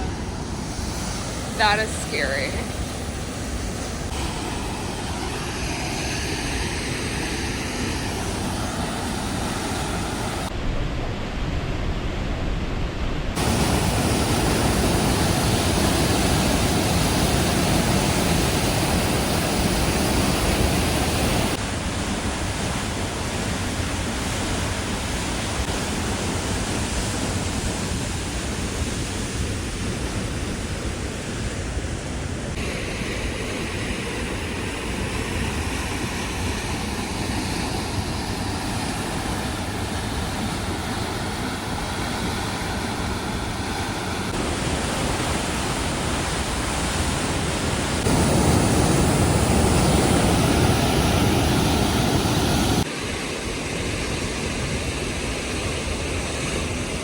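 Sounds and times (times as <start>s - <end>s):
waterfall rushing: 0.0s - 10.5s, 13.4s - 21.6s, 32.6s - 52.9s.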